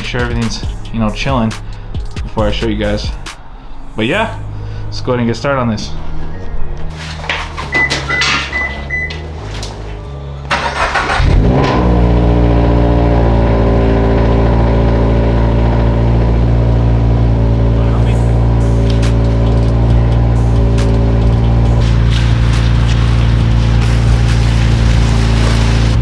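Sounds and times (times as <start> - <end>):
background music: 0.0 - 14.9, 15.9 - 26.0
car engine cranking and idling: 8.1 - 26.0.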